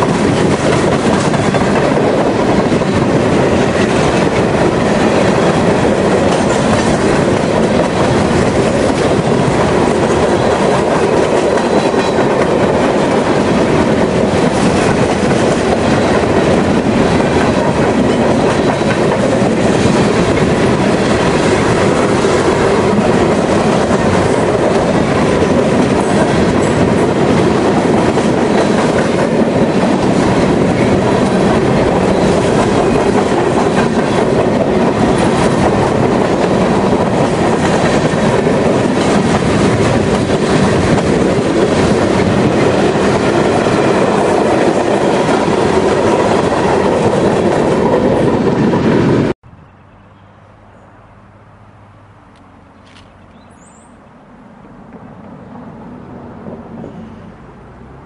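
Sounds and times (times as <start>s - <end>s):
freight cars rolling on rails: 0.0s - 49.4s
faint outdoor background: 49.4s - 58.0s.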